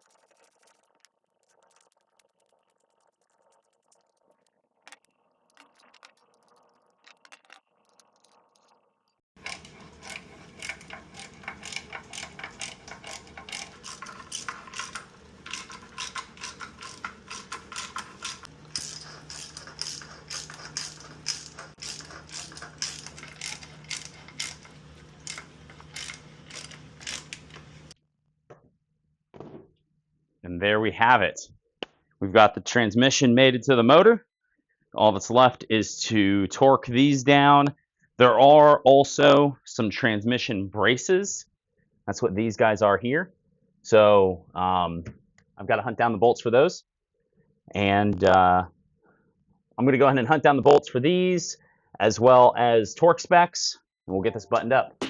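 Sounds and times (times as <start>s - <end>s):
ratchet wrench clicking: 9.4s - 27.7s.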